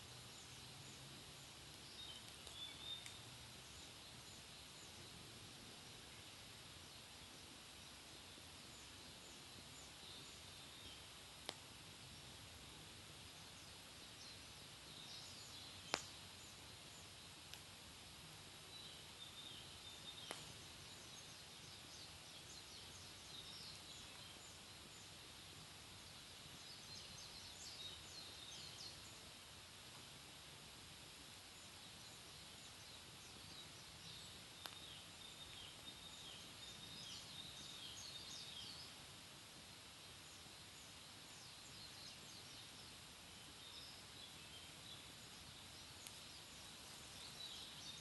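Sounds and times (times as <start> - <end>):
fire crackles: 0.0 - 48.0
wood fire hissing: 0.0 - 48.0.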